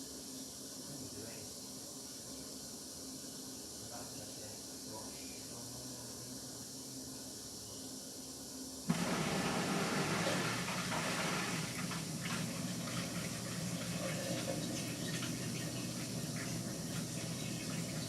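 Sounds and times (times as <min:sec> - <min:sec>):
washing machine low hum: 0:08.9 - 0:18.0
water rushing into washing machine: 0:08.9 - 0:18.0.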